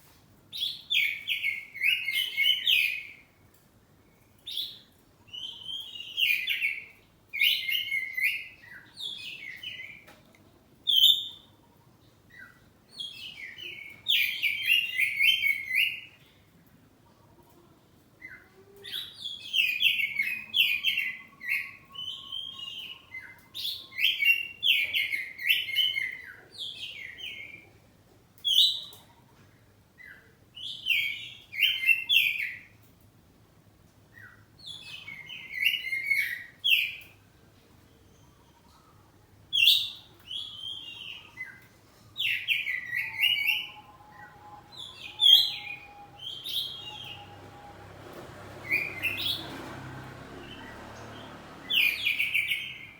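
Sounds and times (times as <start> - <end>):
magpie-robin singing: 0.5 - 3.3, 4.4 - 10.1, 10.8 - 11.5, 12.3 - 16.3, 18.2 - 27.7, 28.4 - 29.1, 30.0 - 32.8, 34.1 - 37.2, 38.0 - 47.6, 48.6 - 49.5, 50.5 - 52.9.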